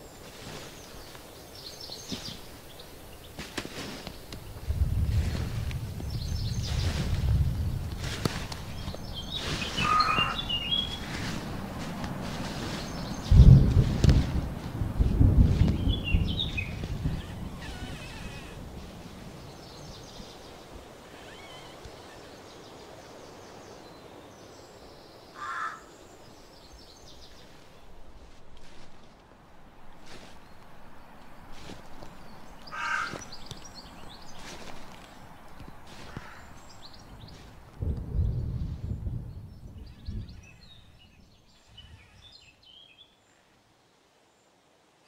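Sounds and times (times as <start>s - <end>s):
outdoor background noise: 0.0s - 45.0s
steady low rumble: 4.4s - 9.8s, 10.4s - 20.4s, 27.3s - 41.3s
bird chirping: 8.6s - 11.4s, 15.7s - 18.7s, 29.8s - 43.4s.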